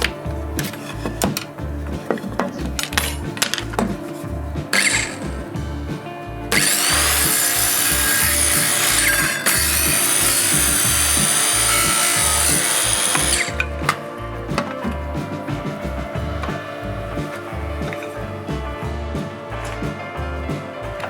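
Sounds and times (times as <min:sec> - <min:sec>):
music with steady beat: 0:00.0 - 0:21.0
power drill boring into wood: 0:04.8 - 0:05.2, 0:06.5 - 0:13.6.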